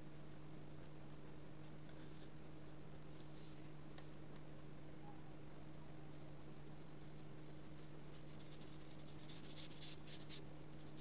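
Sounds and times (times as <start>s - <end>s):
paintbrush strokes on paper: 6.1s - 11.0s.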